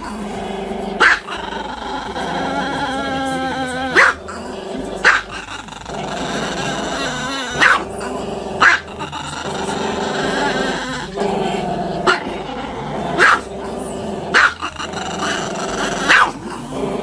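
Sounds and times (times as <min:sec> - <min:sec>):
dog howling: 0:01.0 - 0:04.3
dog yipping: 0:03.9 - 0:04.2, 0:07.5 - 0:07.8.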